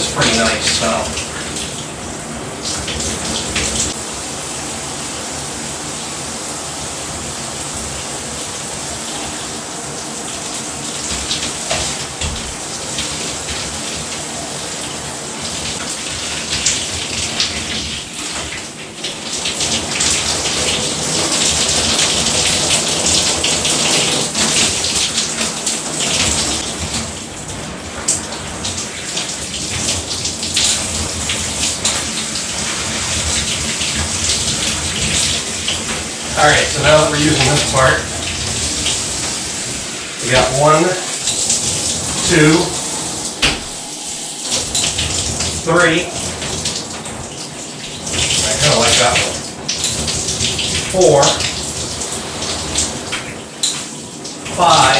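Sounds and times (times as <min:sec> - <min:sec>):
shower spray hissing: 0:00.0 - 0:54.9.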